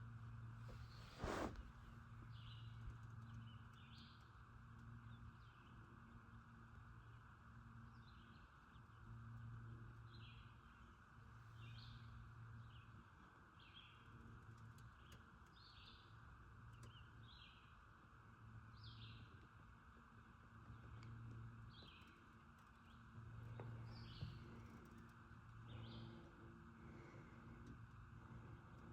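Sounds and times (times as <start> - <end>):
low hum: 16.8 - 28.9.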